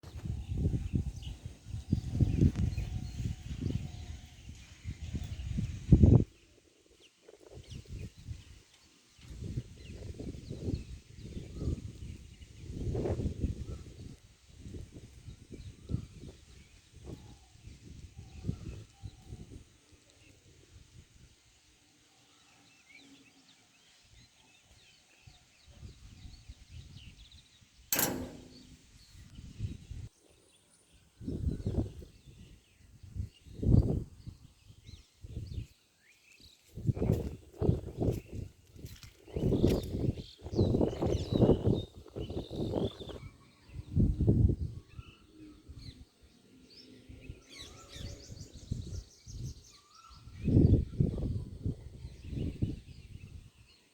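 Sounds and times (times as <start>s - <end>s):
wind buffeting microphone: 0.0s - 6.6s, 7.4s - 8.6s, 9.2s - 19.8s, 25.5s - 30.1s, 31.2s - 35.7s, 36.7s - 53.8s
sharp click: 27.9s - 29.0s.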